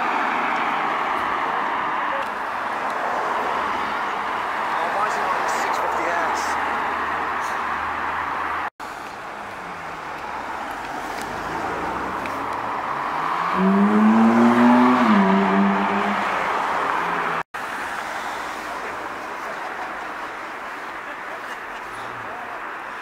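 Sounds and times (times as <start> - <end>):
street traffic noise: 0.0 - 23.0
sports car engine passing: 9.4 - 20.5.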